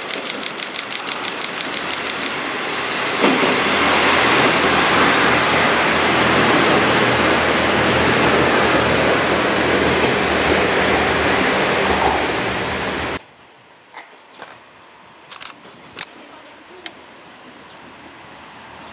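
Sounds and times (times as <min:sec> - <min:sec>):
railcar wheels rushing past: 0:00.0 - 0:13.2.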